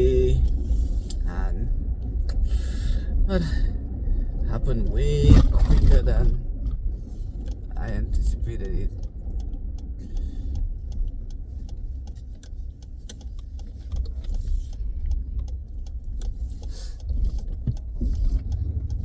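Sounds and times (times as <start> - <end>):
road and engine rumble: 0.0 - 19.0
small rattles and ticks: 6.0 - 19.0.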